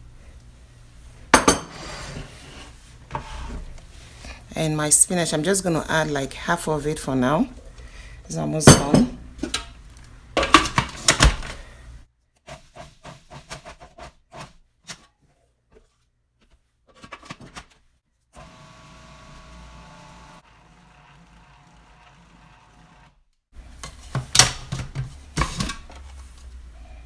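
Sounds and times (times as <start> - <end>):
dishes and utensils clinking: 1.4 - 1.8.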